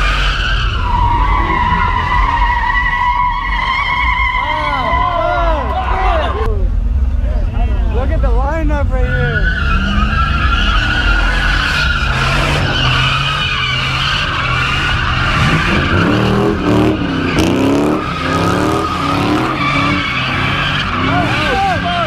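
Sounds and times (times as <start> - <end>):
tires squealing: 0.0 - 22.0
car engine revving: 6.5 - 22.0.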